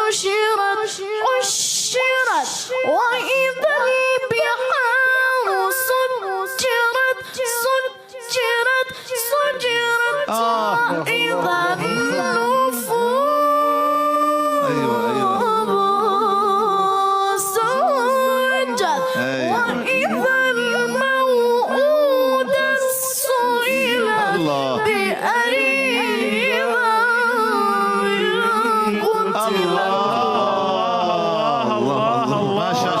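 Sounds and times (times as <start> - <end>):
person chanting a recitation: 9.2 - 33.0.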